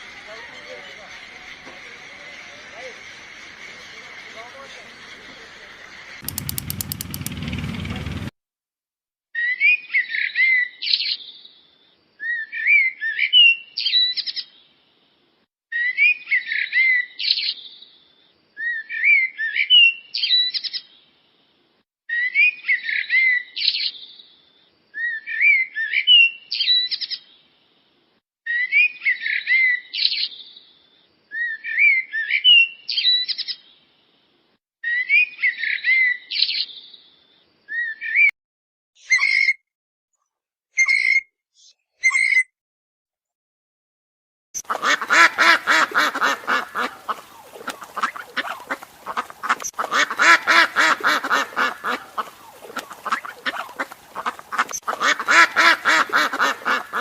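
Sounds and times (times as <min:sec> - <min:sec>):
songbird singing: 0:00.0 - 0:08.0, 0:44.6 - 0:57.0.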